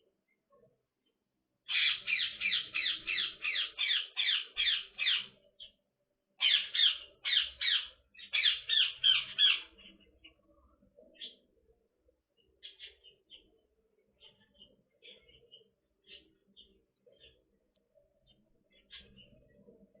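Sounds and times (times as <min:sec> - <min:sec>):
parakeet squawking: 0:01.7 - 0:05.3, 0:06.4 - 0:09.7.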